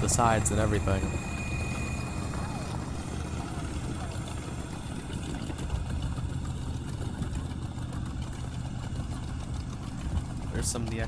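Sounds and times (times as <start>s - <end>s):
engine idling rumble: 0.0s - 11.0s.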